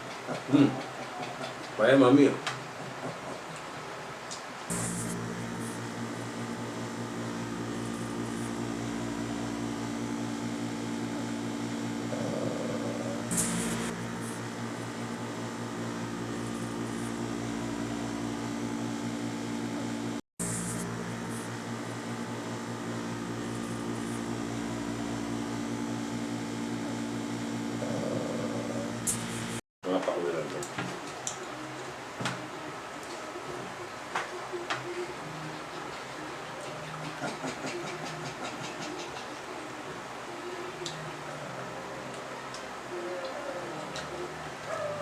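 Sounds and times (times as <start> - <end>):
motor humming: 4.7 - 29.6.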